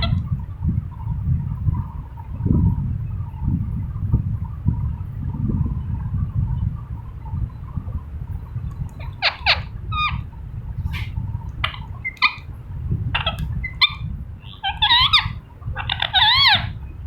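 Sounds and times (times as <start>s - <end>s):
low steady rumble: 0.0s - 17.0s
parakeet calling: 8.9s - 16.9s.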